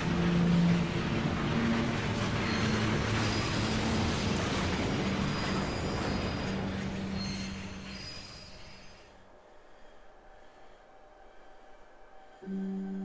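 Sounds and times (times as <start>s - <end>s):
train running past: 0.0s - 13.0s
wheels squealing on rails: 1.6s - 9.2s.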